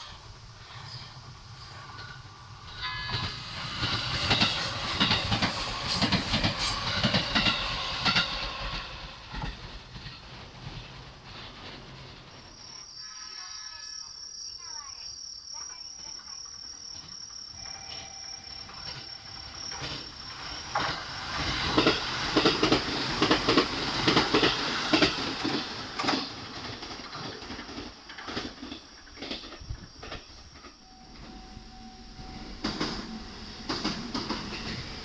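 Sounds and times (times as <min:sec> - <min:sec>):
train wheels clacking over rail joints: 0:00.0 - 0:12.5, 0:16.9 - 0:35.0
insect chirring: 0:12.4 - 0:26.3, 0:28.3 - 0:35.0.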